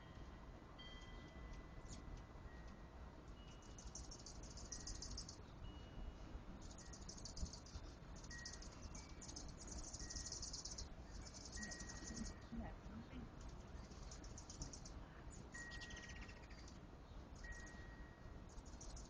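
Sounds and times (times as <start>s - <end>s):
faint outdoor background noise: 0.0s - 19.0s
insects trilling: 3.6s - 5.4s, 6.6s - 12.4s.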